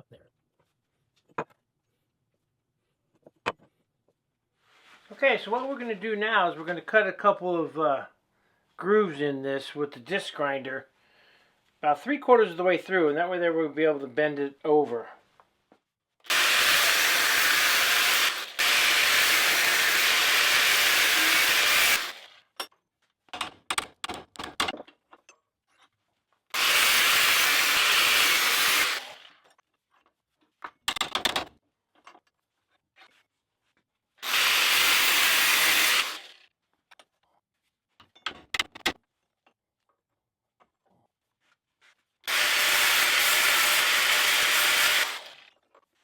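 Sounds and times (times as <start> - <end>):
angle grinder cutting steel: 16.3 - 22.4, 26.6 - 29.4, 34.2 - 36.4, 42.3 - 45.5.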